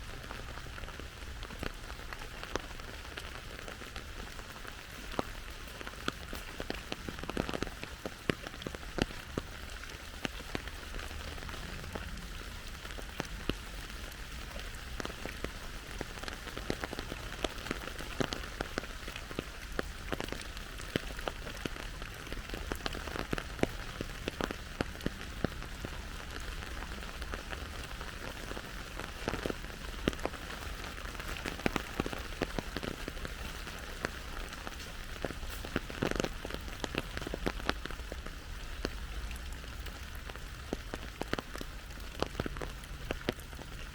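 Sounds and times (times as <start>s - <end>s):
raindrops ticking close by: 0.0s - 43.9s
steady rain falling: 0.0s - 43.9s.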